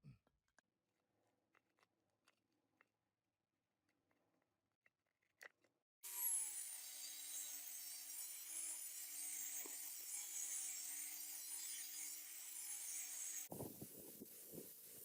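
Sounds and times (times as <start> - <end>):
power tool running: 6.0 - 15.0.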